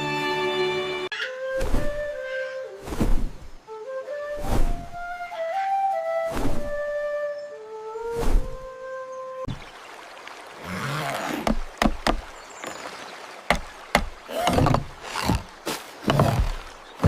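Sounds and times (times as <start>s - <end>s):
rustling swishing noise: 1.4s - 7.2s, 8.0s - 8.8s
sharp knocks and thuds: 11.4s - 12.4s, 13.5s - 17.0s.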